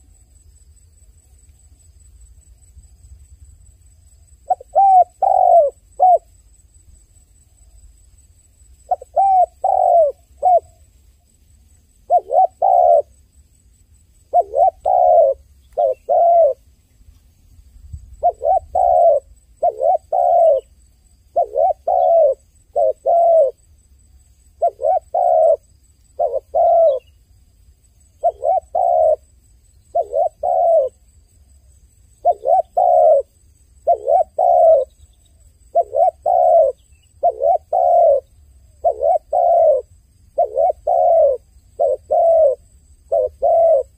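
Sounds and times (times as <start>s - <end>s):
dove cooing: 4.4s - 6.3s, 8.8s - 10.8s, 12.0s - 13.2s, 14.3s - 16.7s, 18.2s - 20.7s, 21.3s - 23.6s, 24.6s - 27.1s, 28.2s - 29.3s, 29.9s - 31.0s, 32.2s - 35.0s, 35.7s - 43.9s.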